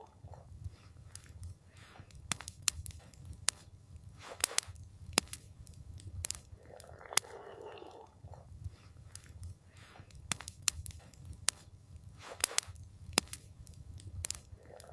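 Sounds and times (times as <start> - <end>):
campfire crackling and popping: 0.0 - 7.4, 8.0 - 14.9.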